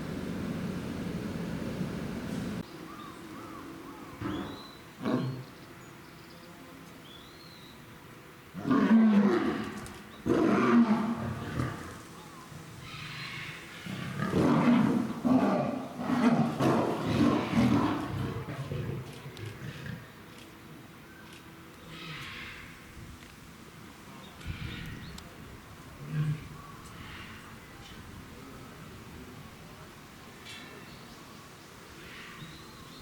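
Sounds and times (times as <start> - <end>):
lions snarling: 13.8 - 20.1.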